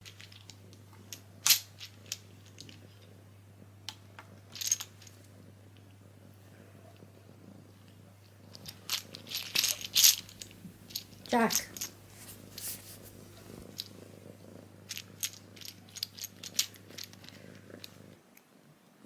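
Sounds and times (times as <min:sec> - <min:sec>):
steady low hum: 0:01.4 - 0:18.2
wooden tiles clattering: 0:08.6 - 0:13.9.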